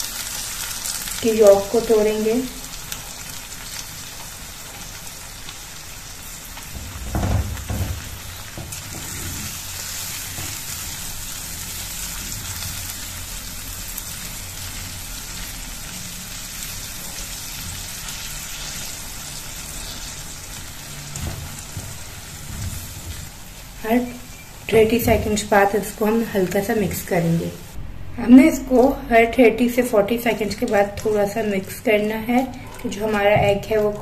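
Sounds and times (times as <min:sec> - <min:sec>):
eggs sizzling in a frying pan: 0:00.0 - 0:27.8, 0:29.8 - 0:34.0
spatula stirring and scraping: 0:06.6 - 0:11.0.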